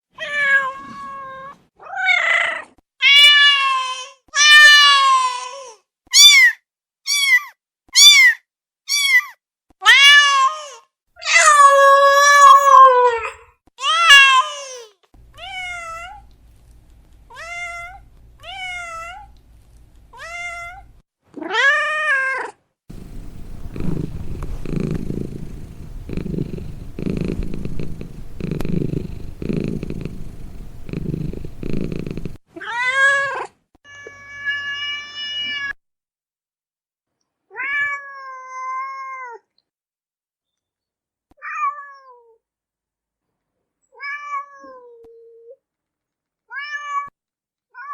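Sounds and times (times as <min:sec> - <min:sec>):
cat purring: 0:22.9 - 0:32.4.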